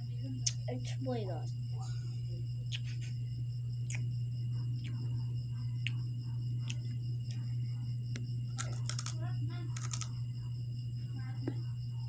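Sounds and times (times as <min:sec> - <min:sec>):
low electrical hum: 0:00.0 - 0:12.0
crunchy snack chewing: 0:08.5 - 0:10.1.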